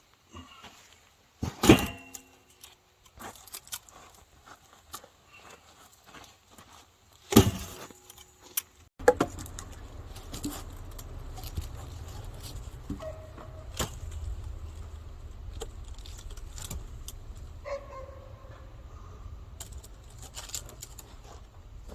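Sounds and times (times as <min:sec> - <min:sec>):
axe hitting wood: 0:01.4 - 0:02.3, 0:07.3 - 0:07.9, 0:09.0 - 0:09.4
low rumble: 0:09.1 - 0:21.9.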